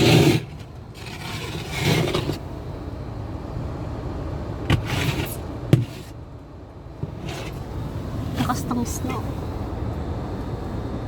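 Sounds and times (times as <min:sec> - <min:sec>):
car cabin rumble: 0:01.9 - 0:10.3.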